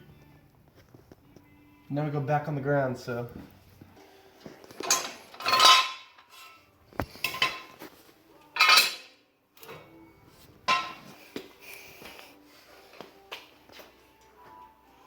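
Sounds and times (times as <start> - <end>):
metal tools clanking: 4.7 - 7.8, 8.6 - 9.8, 10.7 - 11.1.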